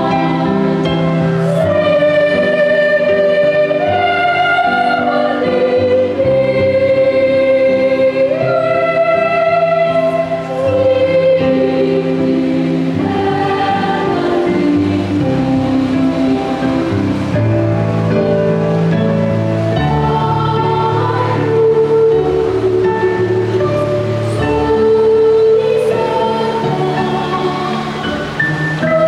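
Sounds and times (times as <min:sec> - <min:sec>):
children's choir singing a carol: 0:00.0 - 0:29.0.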